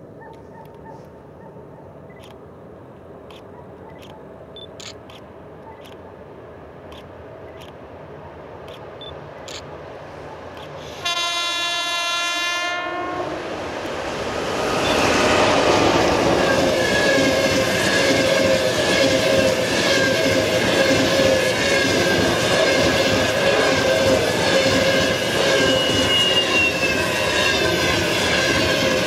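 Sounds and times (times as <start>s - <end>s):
train rolling past: 0.0s - 29.0s
train whine: 5.3s - 29.0s
locomotive horn: 10.9s - 13.4s.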